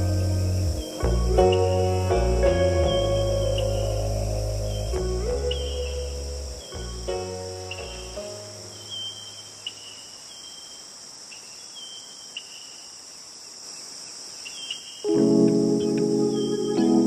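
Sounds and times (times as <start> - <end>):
soft background music: 0.0 - 9.1, 15.1 - 17.0
insects buzzing high: 0.0 - 17.0
short insect chirps: 0.0 - 17.0.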